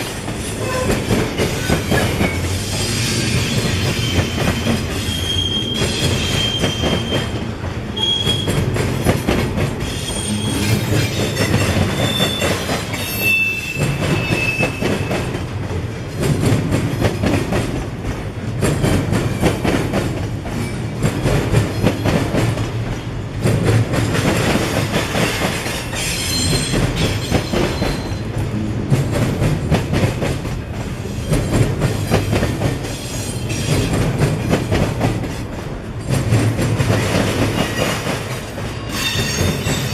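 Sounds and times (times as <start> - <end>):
train wheels clattering: 0.0 - 39.9
high-pitched wheel squeals: 3.4 - 7.3, 8.0 - 8.6, 9.9 - 15.1.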